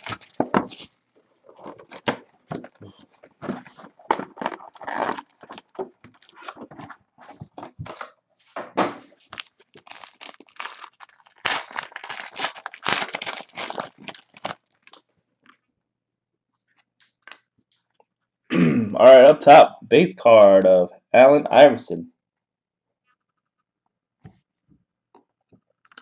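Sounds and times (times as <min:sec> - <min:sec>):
wrapper tearing and crinkling: 0:00.0 - 0:02.2, 0:03.7 - 0:06.9, 0:09.1 - 0:15.0.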